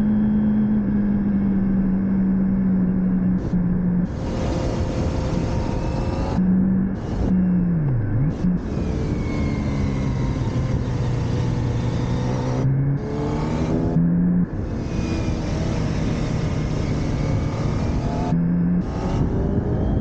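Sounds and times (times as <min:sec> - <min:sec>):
motorcycle engine revving: 0:00.0 - 0:20.0
steady rushing noise: 0:08.3 - 0:20.0.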